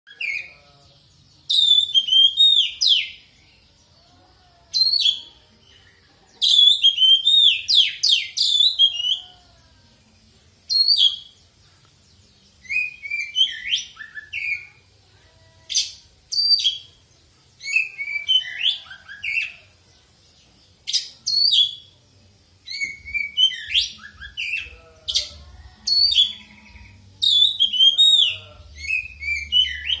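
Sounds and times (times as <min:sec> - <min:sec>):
bird singing whistles and chatter: 0:01.4 - 0:03.2, 0:06.5 - 0:09.3, 0:10.7 - 0:11.4, 0:12.6 - 0:14.8, 0:17.6 - 0:19.7, 0:20.9 - 0:21.9, 0:22.6 - 0:30.0.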